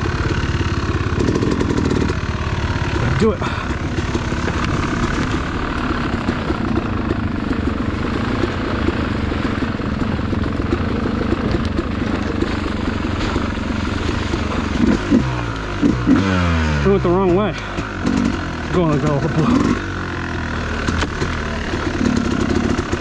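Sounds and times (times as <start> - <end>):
dirt bike engine chugging: 0.0 - 23.0.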